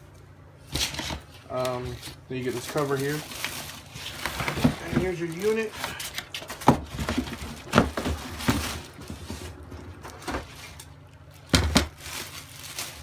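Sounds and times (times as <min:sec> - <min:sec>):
plastic and cardboard scraping: 0:00.8 - 0:10.9.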